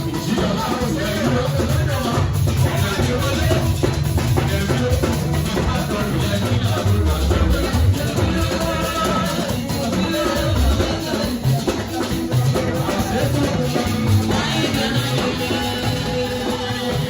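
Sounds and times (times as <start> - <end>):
gospel church music: 0.0 - 17.0
voices singing: 0.0 - 17.0.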